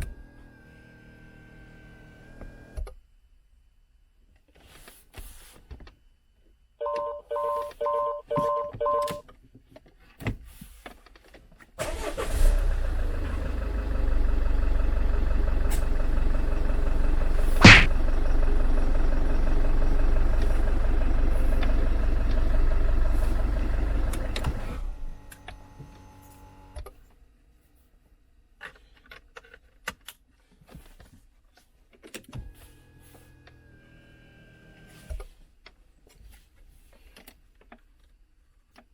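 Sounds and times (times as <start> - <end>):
short electronic beeps: 6.8 - 9.2
diesel engine running: 11.8 - 25.2
sharp click: 17.6 - 17.9.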